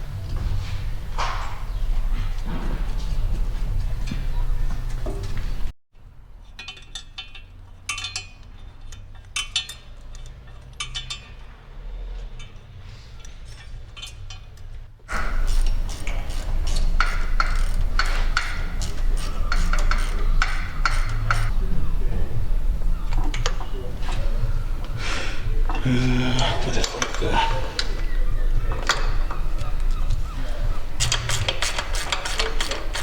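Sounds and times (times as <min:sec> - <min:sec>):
metal tools clinking: 0:06.3 - 0:21.5, 0:31.0 - 0:33.0.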